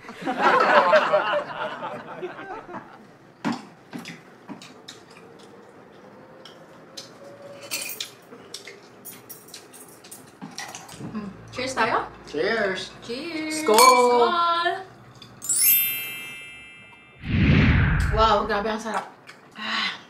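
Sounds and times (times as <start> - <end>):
cutlery and dishes clinking: 7.6 - 11.0.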